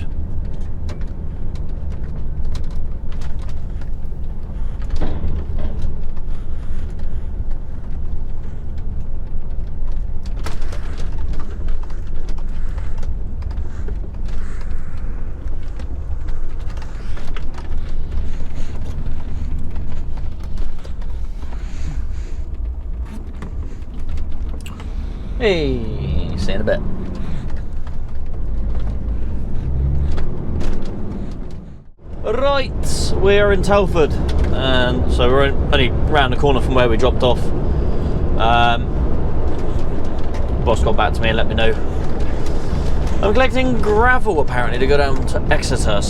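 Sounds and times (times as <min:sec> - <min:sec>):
light knocks and rattles: 0:00.0 - 0:32.5
lorry engine and road rumble: 0:00.0 - 0:46.0.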